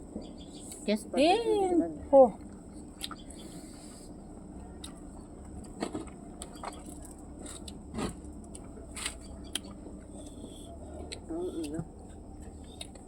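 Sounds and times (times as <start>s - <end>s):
low steady hum: 0.0s - 13.0s
mouth clicks and smacks: 3.0s - 3.3s.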